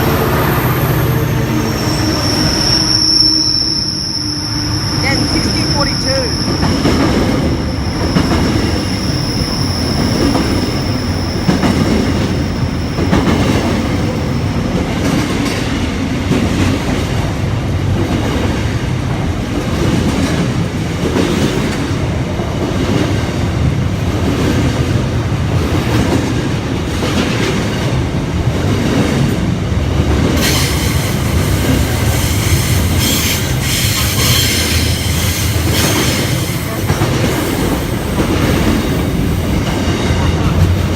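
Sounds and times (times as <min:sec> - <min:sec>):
high wheel squeal: 0:00.5 - 0:11.9, 0:30.4 - 0:36.8
train wheels clacking over rail joints: 0:09.9 - 0:15.6, 0:30.1 - 0:40.9.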